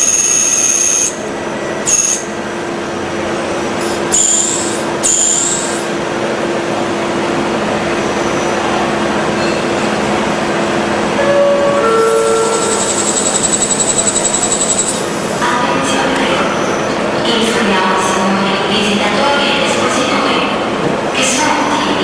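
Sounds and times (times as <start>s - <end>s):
cutter squealing: 3.8s - 5.9s, 11.7s - 15.4s.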